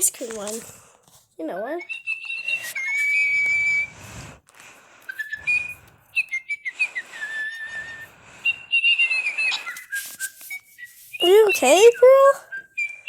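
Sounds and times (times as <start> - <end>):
toy bird chirping: 1.8 - 3.4, 5.2 - 13.0.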